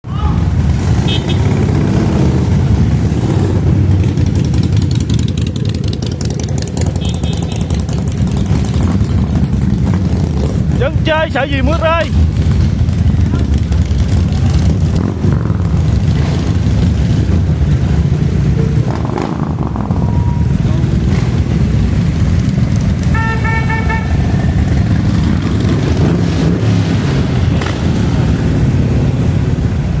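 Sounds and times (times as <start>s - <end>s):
motorcycle engine rumbling: 0.1s - 30.0s
short horn beeps: 23.1s - 24.2s.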